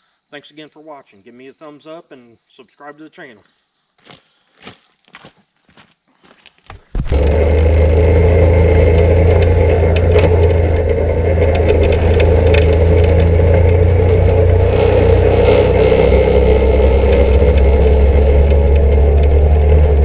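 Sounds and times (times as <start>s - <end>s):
engine droning: 7.0s - 20.0s.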